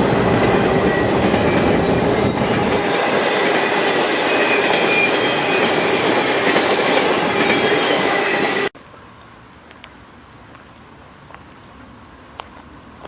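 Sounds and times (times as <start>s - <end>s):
freight train rumbling on rails: 0.0s - 8.7s
high wheel squeal: 0.0s - 8.7s.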